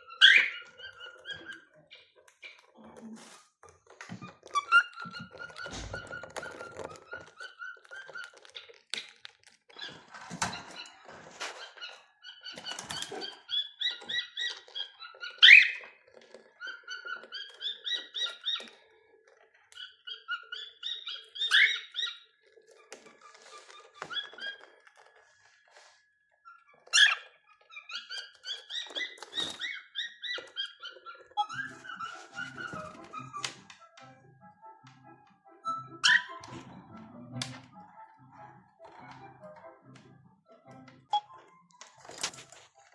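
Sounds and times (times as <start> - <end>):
cockatiels whistling and chirping: 0.0 - 2.6, 11.5 - 18.8, 19.8 - 22.3, 26.5 - 33.4, 35.9 - 36.6.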